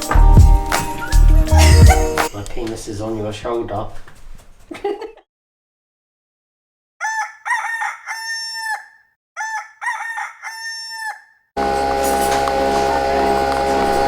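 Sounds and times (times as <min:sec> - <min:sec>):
rooster crowing: 0:07.0 - 0:11.8.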